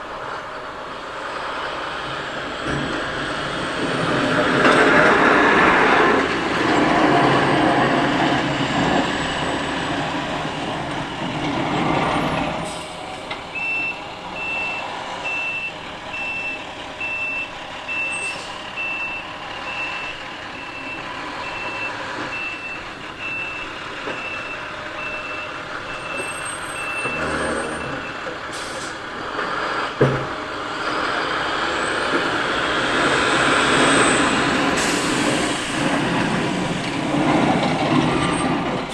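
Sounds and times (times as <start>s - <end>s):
truck engine running: 0.0s - 38.9s
reverse alarm beeping: 13.5s - 28.4s.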